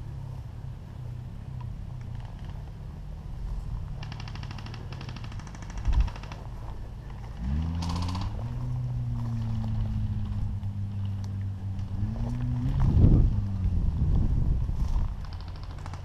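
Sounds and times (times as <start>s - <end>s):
rapid mechanical rattle: 3.8s - 8.4s, 14.8s - 16.0s.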